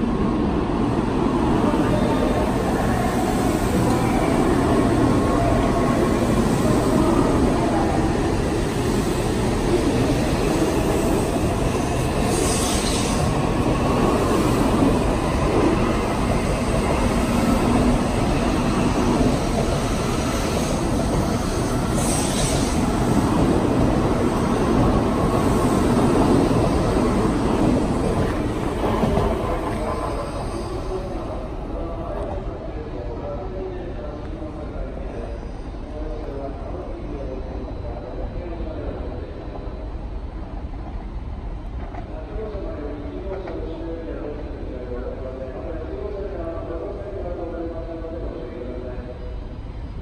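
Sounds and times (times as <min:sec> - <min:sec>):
train rumbling: 0:00.0 - 0:50.0
brief hissing: 0:12.3 - 0:13.3, 0:21.9 - 0:22.8.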